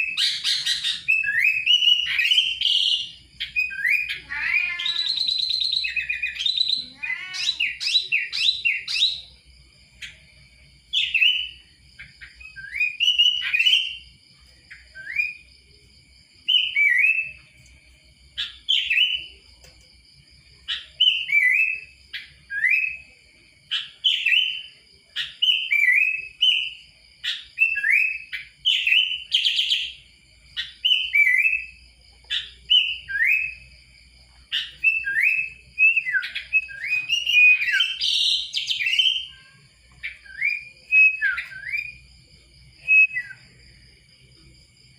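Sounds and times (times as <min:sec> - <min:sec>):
bird singing whistled notes: 0:00.0 - 0:10.2, 0:10.9 - 0:15.6, 0:16.4 - 0:17.7, 0:18.4 - 0:19.6, 0:20.6 - 0:33.8, 0:34.5 - 0:43.8
faint steady high tone: 0:01.1 - 0:44.8.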